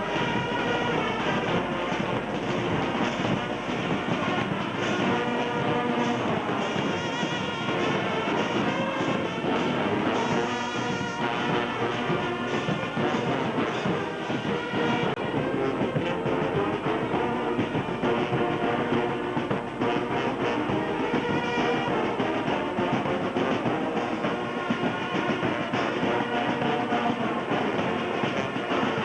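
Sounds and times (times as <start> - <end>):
brass instruments playing held notes: 0.0 - 29.0.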